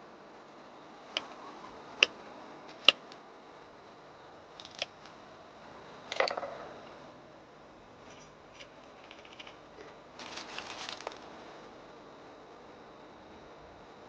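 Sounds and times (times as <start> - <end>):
small hard objects clattering: 8.0 - 11.3.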